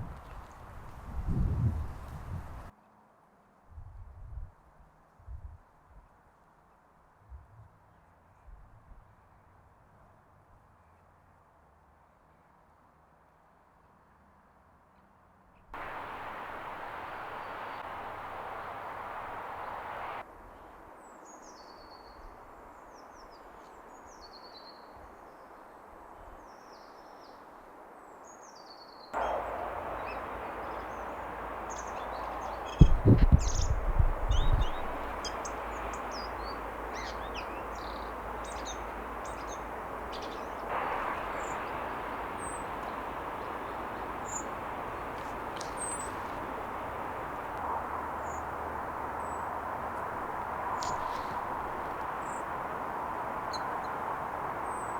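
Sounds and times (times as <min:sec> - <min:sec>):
rushing background noise: 0:15.8 - 0:20.2, 0:29.2 - 0:54.9
songbirds singing and chirping: 0:15.8 - 0:20.2, 0:29.2 - 0:54.9
loud low thumps: 0:32.7 - 0:34.9.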